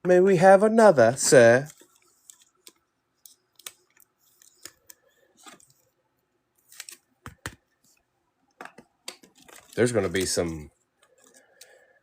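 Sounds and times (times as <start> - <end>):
cards clicking and rustling: 1.1 - 5.9, 6.6 - 8.0, 8.6 - 11.8.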